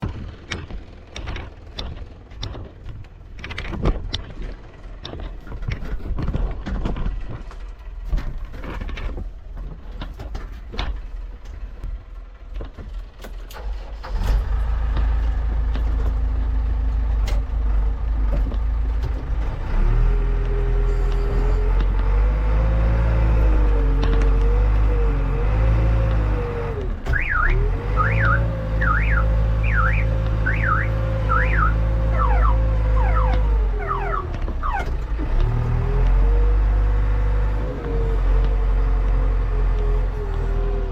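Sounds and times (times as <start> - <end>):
machinery clanks and knocks: 0.0 - 13.6
diesel engine rumble: 0.0 - 40.9
wavering tone: 28.0 - 35.0.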